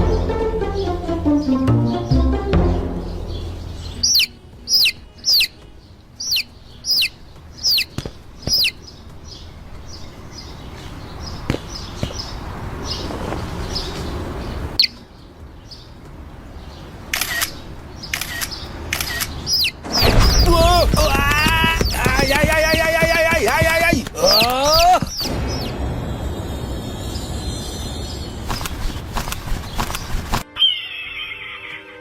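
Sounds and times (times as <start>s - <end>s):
small bird cheeping: 3.8s - 5.6s, 6.2s - 9.4s, 18.1s - 23.1s, 24.2s - 25.8s.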